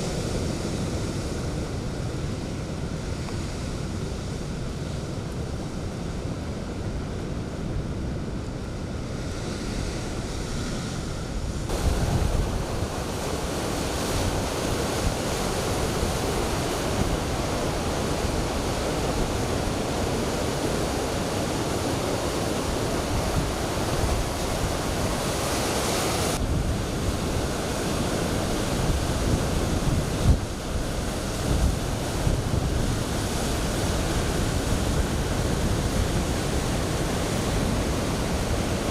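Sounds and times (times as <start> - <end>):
wind buffeting microphone: 0.0 - 38.9
surf crashing: 11.7 - 38.9.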